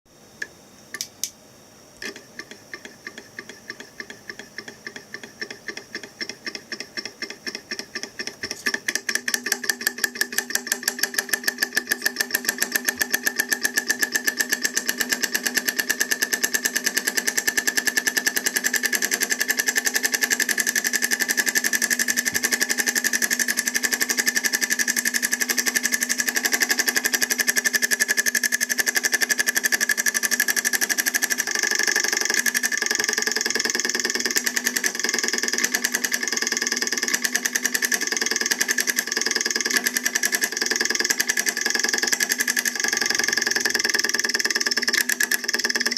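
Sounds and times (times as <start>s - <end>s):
solenoid motor clicking: 0.4s - 1.4s, 2.0s - 45.9s.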